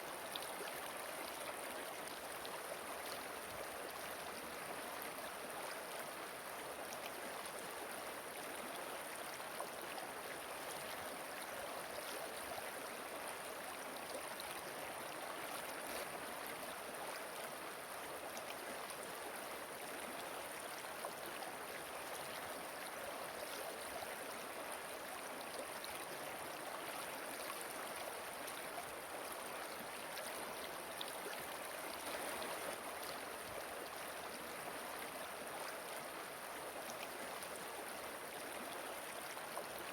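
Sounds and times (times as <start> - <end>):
flowing river water: 0.0 - 39.9
faint splashes: 32.0 - 32.8.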